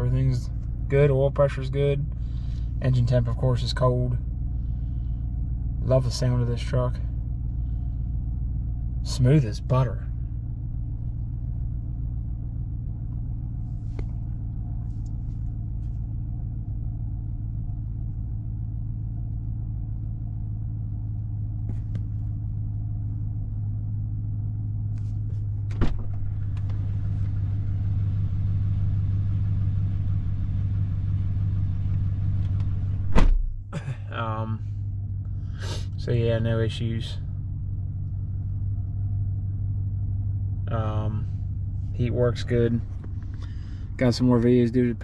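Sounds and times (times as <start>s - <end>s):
truck engine idling: 0.0s - 45.0s
sharp thump: 25.7s - 26.3s, 33.0s - 33.7s.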